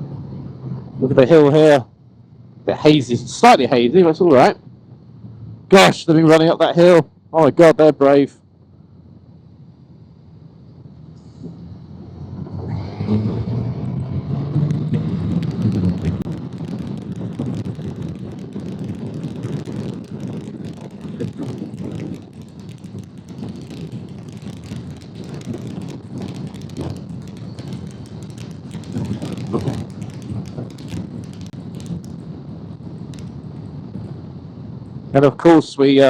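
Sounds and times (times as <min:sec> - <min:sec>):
wind rushing over microphone: 0:14.5 - 0:34.9
motorcycle engine hum: 0:14.7 - 0:34.5.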